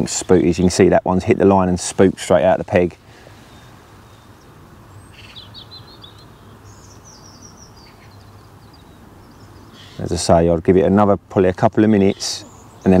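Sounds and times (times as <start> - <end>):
small bird chirping: 3.5 - 10.1, 12.0 - 13.0.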